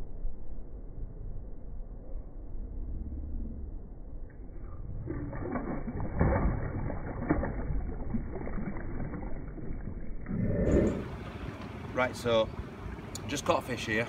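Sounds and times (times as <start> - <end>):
fish thrashing and splashing: 5.0 - 11.8.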